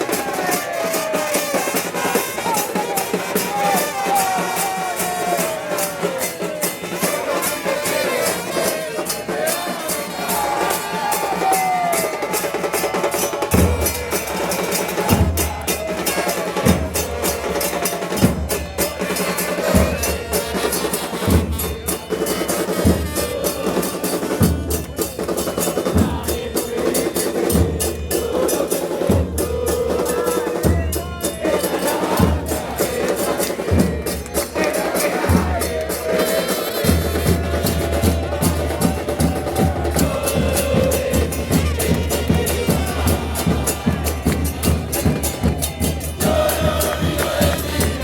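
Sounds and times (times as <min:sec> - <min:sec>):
fast snare drumming: 0:00.0 - 0:48.0
bass drum beat: 0:22.8 - 0:26.8, 0:29.0 - 0:48.0.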